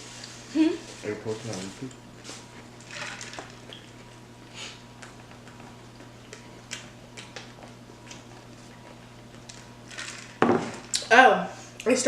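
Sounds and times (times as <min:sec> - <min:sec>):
low electrical hum: 0:00.0 - 0:12.0
person chewing food: 0:03.5 - 0:09.8.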